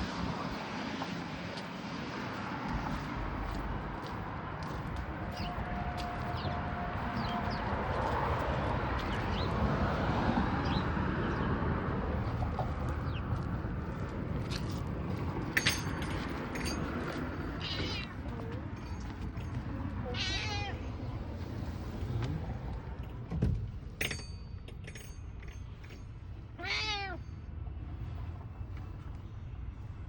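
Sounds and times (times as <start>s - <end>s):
cat meowing: 17.6s - 18.2s, 20.1s - 21.0s, 26.6s - 27.3s.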